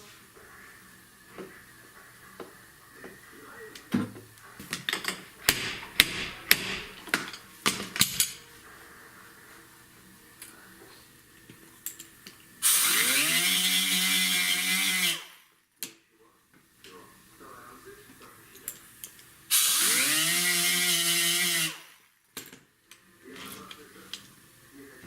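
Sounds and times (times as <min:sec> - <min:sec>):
power tool humming: 0:00.0 - 0:15.6, 0:18.9 - 0:22.1
workshop tools clicking: 0:03.7 - 0:08.5, 0:11.4 - 0:15.2.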